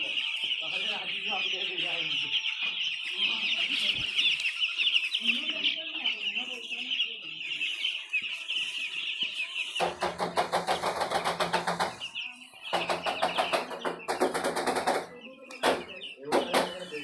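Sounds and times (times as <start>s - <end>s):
chickens cheeping: 0.0s - 17.0s.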